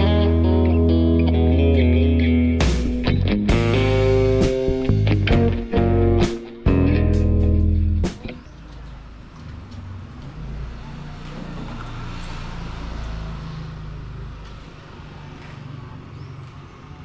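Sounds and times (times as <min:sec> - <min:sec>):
passing vehicle engine rumble: 0:07.0 - 0:17.0.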